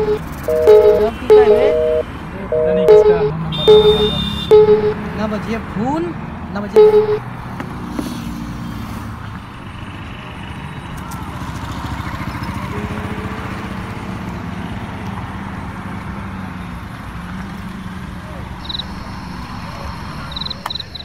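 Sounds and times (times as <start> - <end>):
car engine humming: 0.0 - 7.7, 9.2 - 21.0.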